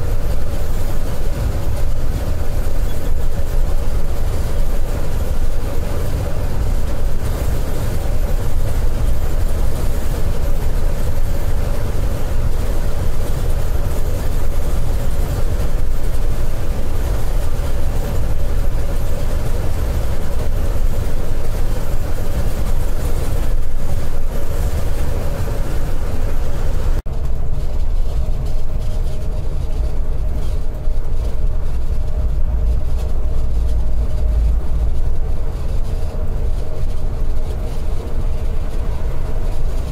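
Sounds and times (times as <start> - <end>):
coach engine and road rumble: 0.0 - 39.9
constant hum: 0.0 - 39.9.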